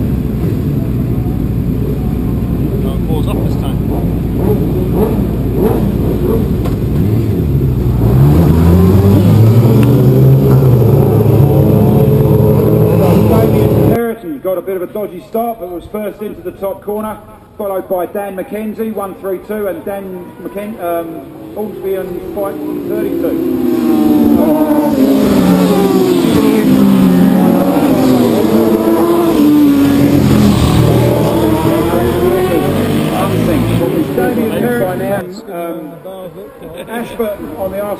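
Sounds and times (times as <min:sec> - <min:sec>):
deep heavy engine rumble: 0:00.0 - 0:14.0, 0:21.3 - 0:35.2
racing motorcycles accelerating: 0:00.0 - 0:14.0, 0:21.0 - 0:35.2.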